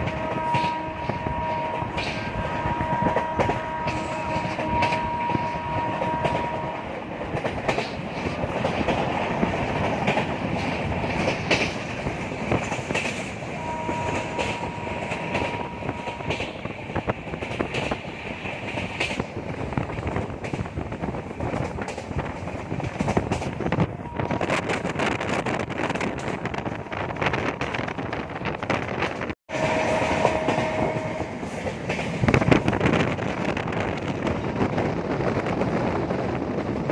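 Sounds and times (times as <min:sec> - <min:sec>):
two-note train horn: 0:00.0 - 0:06.9, 0:13.6 - 0:16.6, 0:23.9 - 0:24.6, 0:29.5 - 0:31.6
train wheels rumbling on rails: 0:00.0 - 0:36.9.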